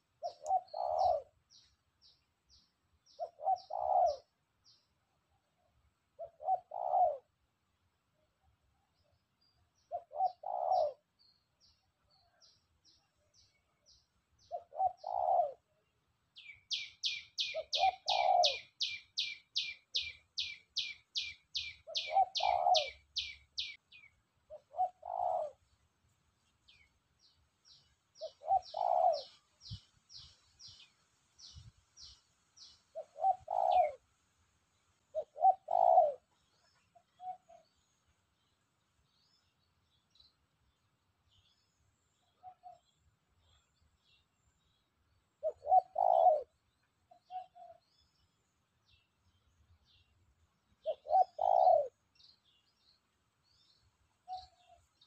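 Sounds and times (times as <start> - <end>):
dove cooing: 0.2 - 1.4, 3.2 - 4.4, 6.2 - 7.4, 9.9 - 11.1, 14.4 - 15.7, 16.7 - 23.7, 24.5 - 25.6, 28.2 - 29.4, 32.9 - 34.0, 35.1 - 36.4, 37.0 - 37.7, 45.4 - 46.6, 47.2 - 47.9, 50.8 - 52.0
small bird chirping: 0.2 - 5.0, 8.9 - 15.7, 16.3 - 25.8, 26.4 - 34.1, 35.1 - 55.0.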